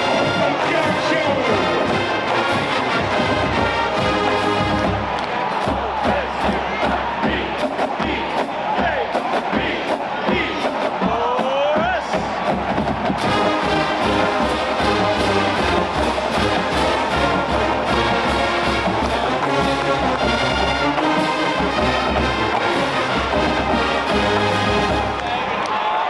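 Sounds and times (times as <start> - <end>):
brass section playing tune: 0.0 - 6.3, 13.2 - 25.7
steady drum beat: 0.0 - 25.6.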